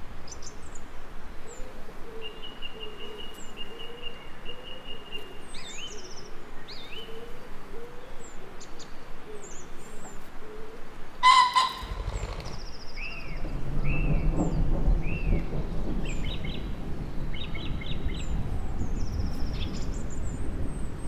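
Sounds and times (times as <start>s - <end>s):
faint low bird call: 11.2s - 12.7s
birds singing and calling: 11.2s - 12.8s
loud harsh bird call: 11.2s - 12.8s
low thunder rumbling: 11.4s - 21.0s.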